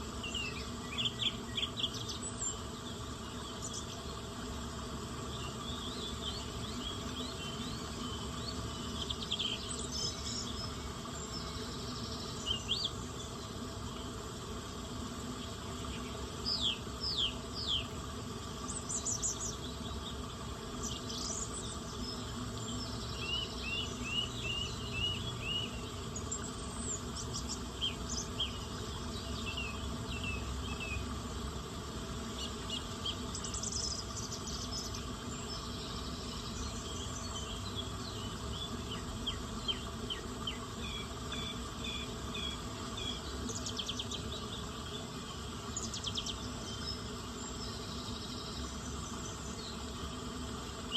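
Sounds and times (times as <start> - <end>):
insect drone: 0.0 - 50.9
songbirds chirping: 0.0 - 50.9.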